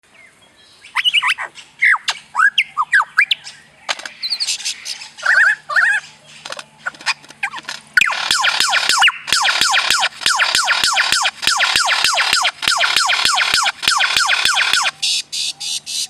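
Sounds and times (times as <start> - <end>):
gibbon whooping calls: 1.0 - 3.4, 4.3 - 6.1, 7.4 - 16.0.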